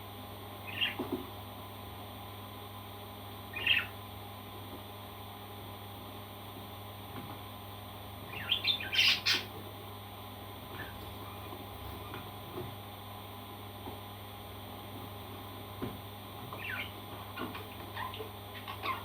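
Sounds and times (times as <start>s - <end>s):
background hum: 0.0s - 19.0s
parrot squawking: 0.7s - 1.0s, 3.5s - 3.9s, 8.3s - 9.5s, 16.6s - 19.0s.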